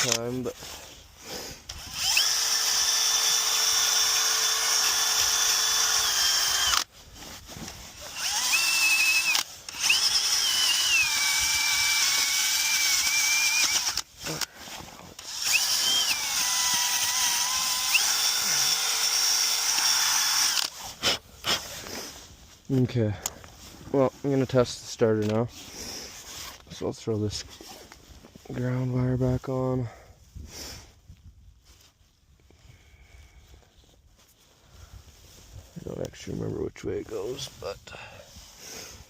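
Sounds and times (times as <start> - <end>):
power drill whining: 1.6 - 6.9, 7.9 - 14.5, 15.1 - 21.0.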